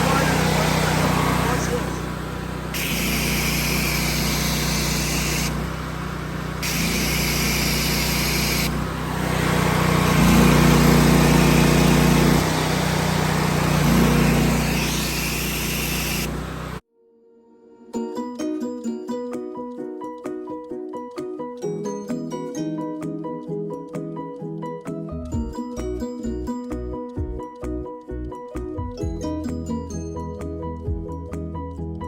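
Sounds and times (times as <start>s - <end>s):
high-pressure spray hissing: 0.0s - 16.8s
pressure washer engine running: 0.0s - 16.8s.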